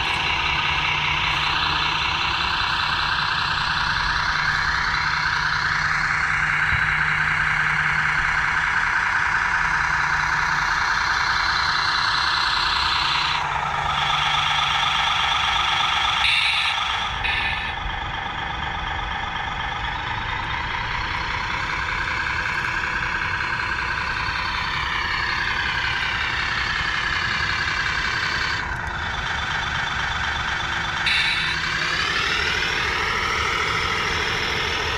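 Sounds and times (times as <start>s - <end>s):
model truck motor whining: 0.0s - 34.9s.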